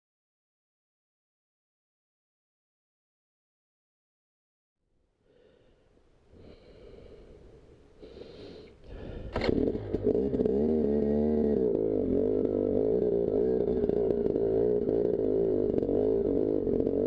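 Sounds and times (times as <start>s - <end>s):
two-stroke dirt bike engine: 8.9s - 17.0s.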